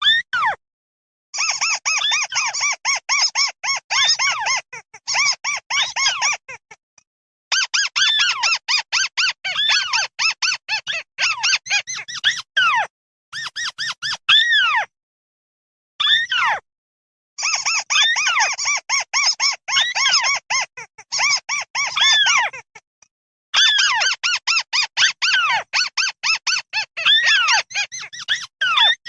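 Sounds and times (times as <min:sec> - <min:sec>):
bird flock squeaky calls: 0:01.4 - 0:06.6, 0:07.5 - 0:14.8, 0:17.4 - 0:22.6, 0:23.6 - 0:29.0.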